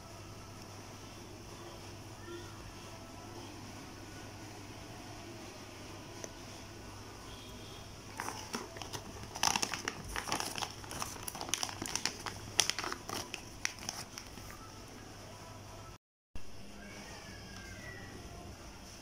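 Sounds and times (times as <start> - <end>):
food packaging crinkling: 8.1 - 14.7.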